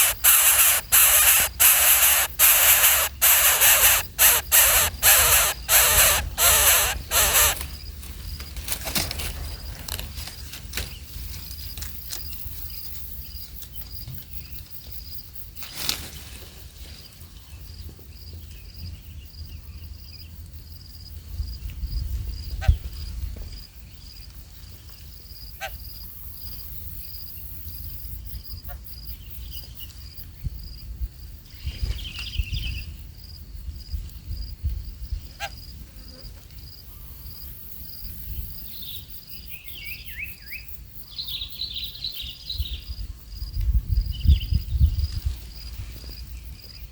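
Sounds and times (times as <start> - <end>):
high-pitched pulsing trill: 0.0 - 7.6
scattered clicks: 0.0 - 7.6
shrill squeaky animal calls: 0.0 - 7.6.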